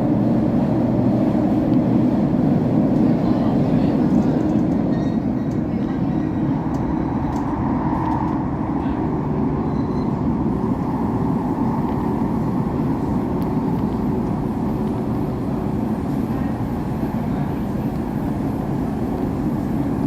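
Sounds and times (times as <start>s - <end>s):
electric train rumbling on rails: 0.0s - 20.0s.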